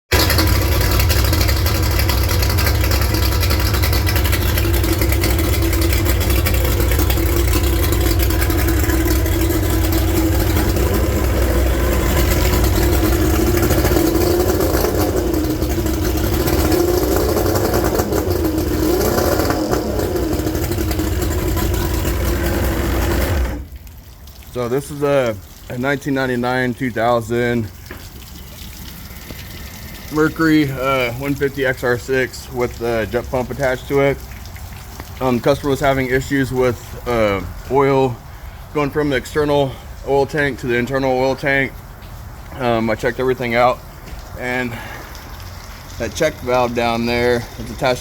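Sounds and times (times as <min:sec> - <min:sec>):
outboard engine idling: 0:00.1 - 0:41.8, 0:42.4 - 0:48.0.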